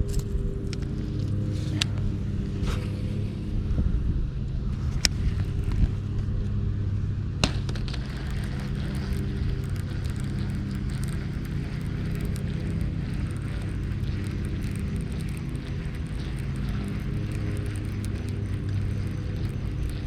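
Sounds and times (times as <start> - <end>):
low mechanical hum: 0.0 - 20.0
sharp clicks: 7.4 - 20.0.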